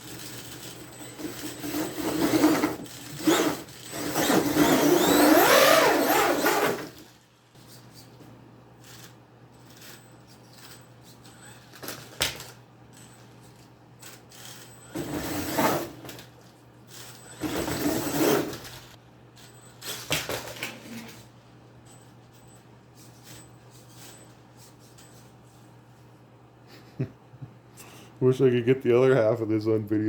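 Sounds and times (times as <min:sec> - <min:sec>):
rc truck whirring and clattering: 0:00.0 - 0:07.2, 0:08.8 - 0:10.8, 0:13.6 - 0:16.2.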